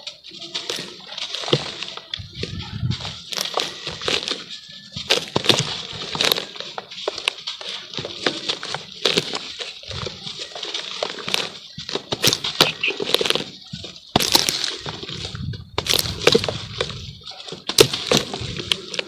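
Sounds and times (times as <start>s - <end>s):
charcoal crackling in water: 5.2s - 19.0s.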